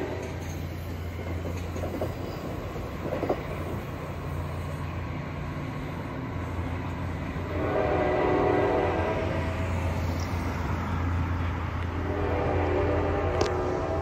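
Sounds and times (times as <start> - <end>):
train engine hum: 0.0 - 14.0
train horn blowing: 7.4 - 9.7, 11.8 - 14.0.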